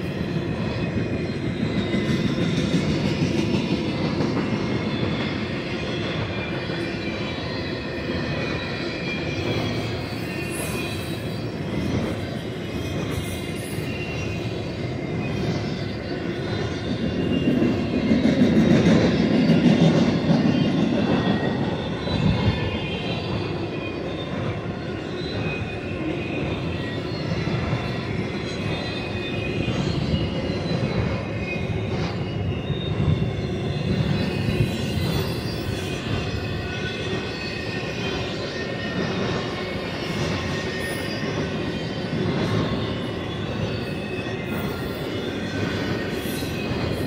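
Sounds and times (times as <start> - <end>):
train wheels rumbling on rail: 0.0 - 47.0
high thin wheel squeal: 25.0 - 47.0.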